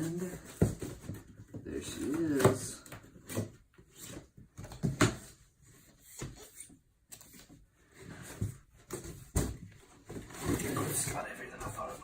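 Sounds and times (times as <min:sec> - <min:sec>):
knocks and thuds of handling: 0:04.3 - 0:05.4, 0:08.2 - 0:10.7.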